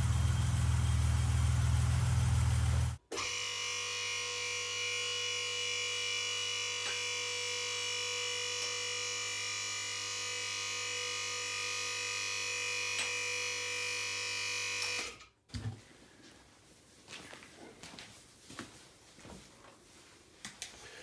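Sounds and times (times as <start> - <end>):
low machine drone: 0.0 - 3.0.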